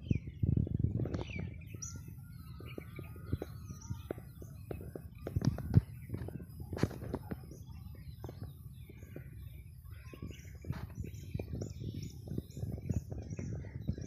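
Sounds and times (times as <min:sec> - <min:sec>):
small birds chirping: 0:00.0 - 0:14.0
steady low rumble: 0:00.0 - 0:14.0.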